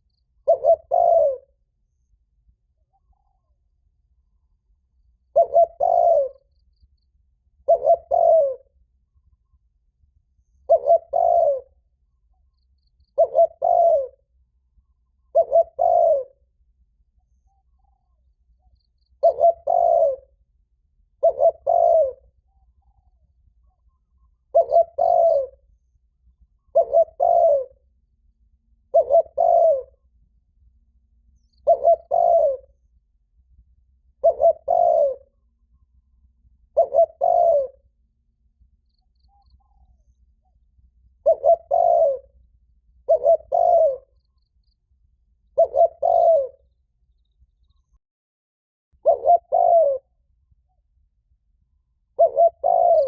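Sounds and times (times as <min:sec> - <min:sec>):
dove cooing: 0:00.4 - 0:01.6, 0:05.2 - 0:06.5, 0:07.6 - 0:08.8, 0:10.6 - 0:11.8, 0:13.1 - 0:14.4, 0:15.2 - 0:16.4, 0:19.2 - 0:20.4, 0:21.2 - 0:23.2, 0:23.8 - 0:25.7, 0:26.5 - 0:27.8, 0:28.9 - 0:30.0, 0:31.4 - 0:32.7, 0:34.2 - 0:35.5, 0:36.6 - 0:37.9, 0:41.2 - 0:42.4, 0:43.0 - 0:44.5, 0:45.5 - 0:46.7, 0:49.0 - 0:50.2, 0:52.1 - 0:53.0.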